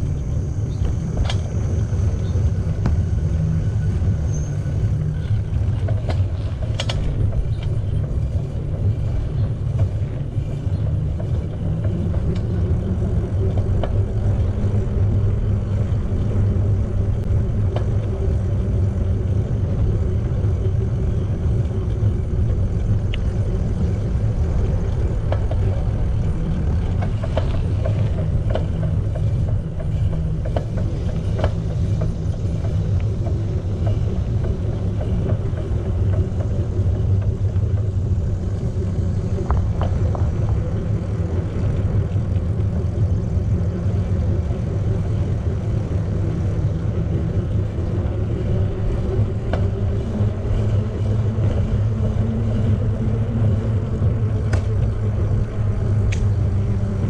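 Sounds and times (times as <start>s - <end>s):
bicycle tyres rolling: 0.0s - 57.0s
wind on microphone: 0.0s - 57.0s.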